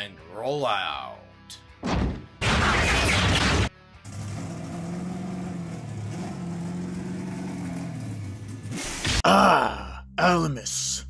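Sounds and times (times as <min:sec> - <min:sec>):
car engine sound effect: 0:02.4 - 0:09.2.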